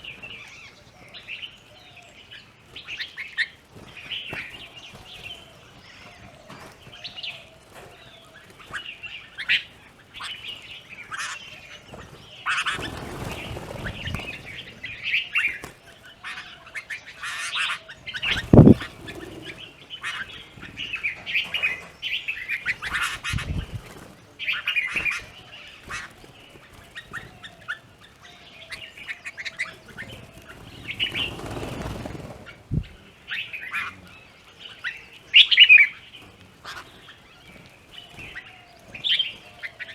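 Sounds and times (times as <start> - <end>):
birds chirping and squawking: 0.0 - 39.9
rustling bursts: 11.9 - 16.1, 18.2 - 28.2, 29.6 - 33.9.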